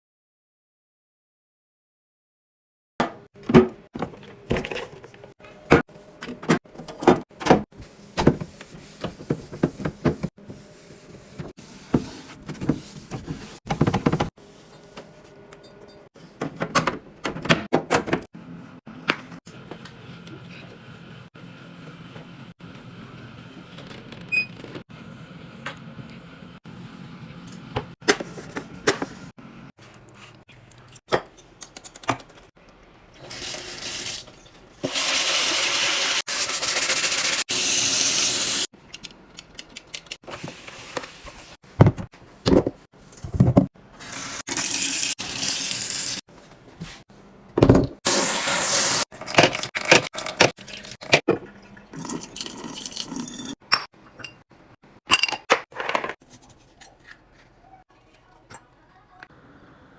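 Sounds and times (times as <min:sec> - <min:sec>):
liquid pouring: 0:50.2 - 0:53.5.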